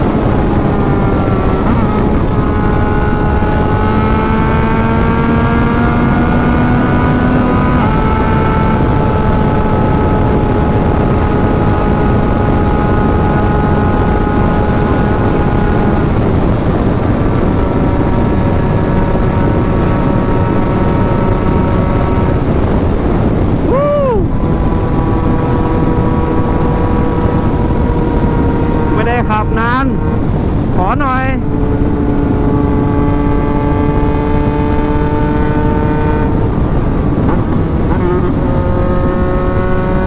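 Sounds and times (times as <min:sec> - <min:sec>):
heavy wind rush: 0:00.0 - 0:40.0
motorcycle engine at high revs: 0:00.0 - 0:40.0.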